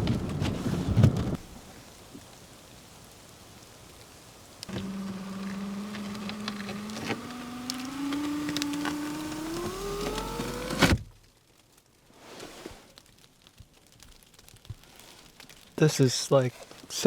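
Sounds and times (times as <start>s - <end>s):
scattered clicks: 4.6s - 10.9s
motor humming: 4.7s - 11.0s.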